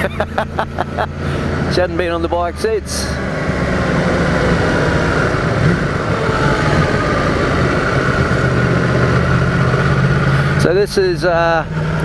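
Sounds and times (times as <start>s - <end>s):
motorcycle engine running: 0.0s - 12.0s
wind noise on microphone: 3.3s - 10.4s.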